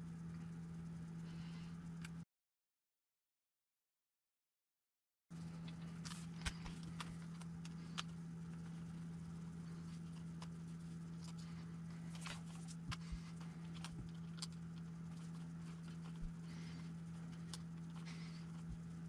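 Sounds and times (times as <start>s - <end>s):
steady low hum: 0.0s - 2.3s, 5.3s - 19.0s.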